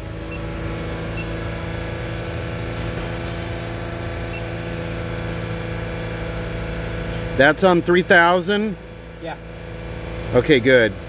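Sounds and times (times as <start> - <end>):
car engine humming: 0.0 - 11.0
faint high clinks: 2.8 - 4.0.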